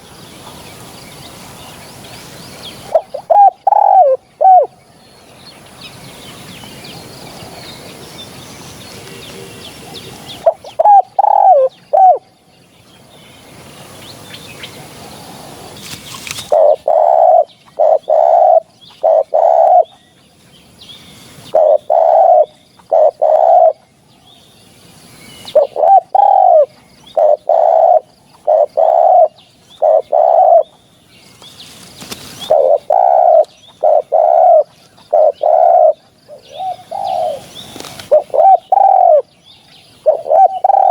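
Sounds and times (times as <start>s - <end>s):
faint bird chirping: 0.0s - 40.9s
dove cooing: 2.8s - 4.8s, 9.0s - 12.3s, 15.0s - 19.9s, 21.5s - 23.8s, 25.5s - 30.7s, 32.4s - 39.3s, 40.0s - 40.9s
steady hiss: 24.2s - 25.6s.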